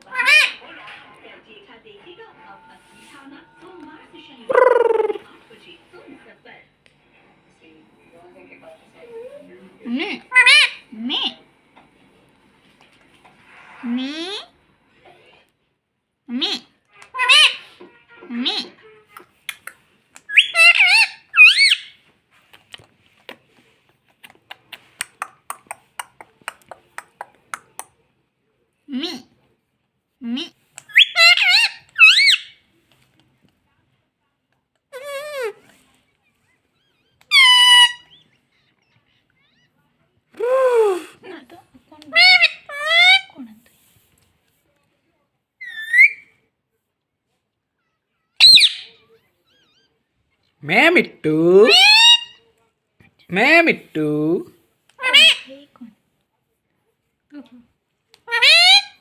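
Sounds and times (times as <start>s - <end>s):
parrot squawk: 0.0s - 0.6s, 4.5s - 5.2s, 10.3s - 11.4s, 16.4s - 18.9s, 20.3s - 22.0s, 30.4s - 32.6s, 36.7s - 39.8s, 42.1s - 43.4s, 45.6s - 46.4s, 47.8s - 50.0s, 51.6s - 52.4s, 55.0s - 55.6s, 58.2s - 59.0s
parakeet whistled calls: 20.3s - 22.0s, 30.9s - 32.6s, 37.3s - 38.4s, 45.6s - 46.3s, 48.4s - 49.0s.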